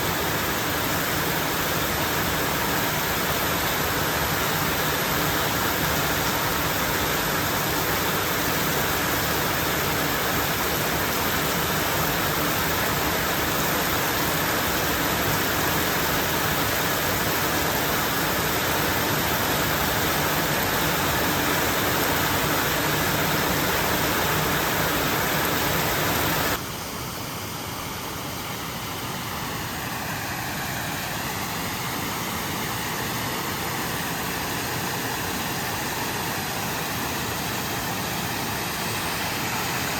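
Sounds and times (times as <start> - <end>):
heavy rain falling: 0.1 - 26.6.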